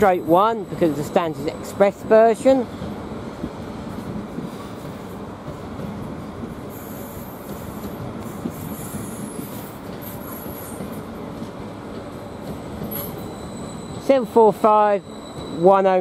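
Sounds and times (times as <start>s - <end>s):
train wheels rumbling on rails: 0.0s - 16.0s
high-pitched wheel squeal: 12.9s - 16.0s.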